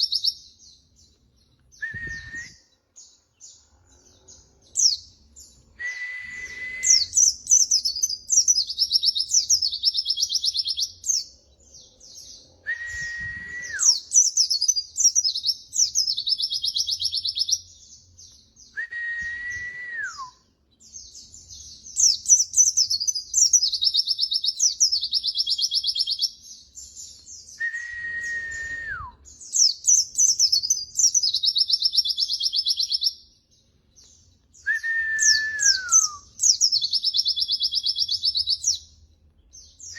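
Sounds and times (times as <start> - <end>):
bird twittering and trill: 0.0 - 18.8, 19.4 - 39.9
bird whistle dropping in pitch: 12.7 - 14.0, 34.7 - 36.3.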